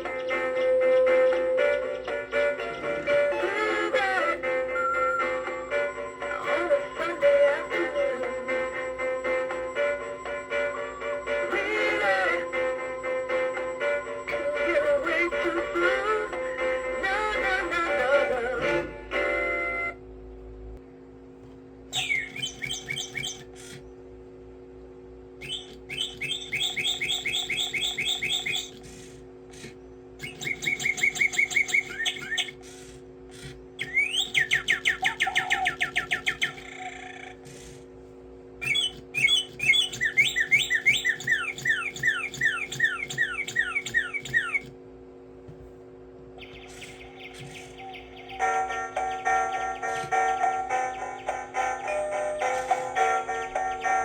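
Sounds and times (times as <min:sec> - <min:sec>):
toy bird whistling chirps: 0:00.0 - 0:17.5, 0:21.9 - 0:23.8, 0:25.4 - 0:37.8, 0:38.6 - 0:44.7, 0:46.4 - 0:53.0
music track: 0:00.0 - 0:20.0, 0:48.1 - 0:54.0
steady low hum: 0:00.0 - 0:54.0.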